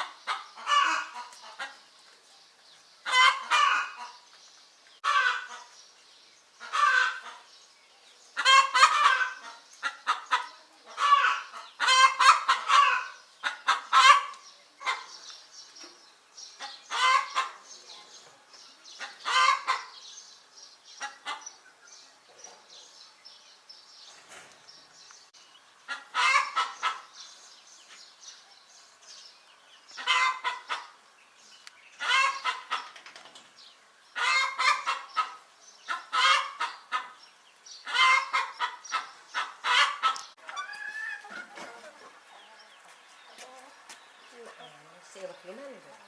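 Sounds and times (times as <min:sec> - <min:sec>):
chickens squawking: 0:00.0 - 0:01.9, 0:03.0 - 0:04.3, 0:05.0 - 0:05.8, 0:06.6 - 0:07.6, 0:08.3 - 0:15.3, 0:16.4 - 0:17.9, 0:18.8 - 0:20.2, 0:20.9 - 0:21.8, 0:25.7 - 0:27.3, 0:29.8 - 0:31.0, 0:31.9 - 0:33.1, 0:34.0 - 0:46.0
chickens clucking: 0:00.0 - 0:05.8, 0:06.6 - 0:23.1, 0:24.4 - 0:28.4, 0:29.1 - 0:46.0.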